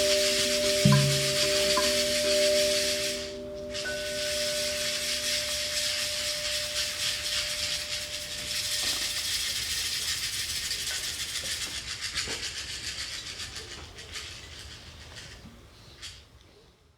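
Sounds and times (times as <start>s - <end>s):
ringing tone: 0.0s - 9.4s
steady hiss with fine rattle: 0.0s - 16.9s.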